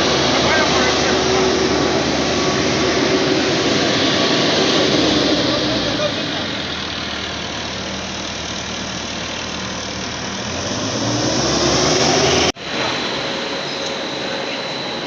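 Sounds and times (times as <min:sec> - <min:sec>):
boring machine engine running: 0:00.0 - 0:15.0.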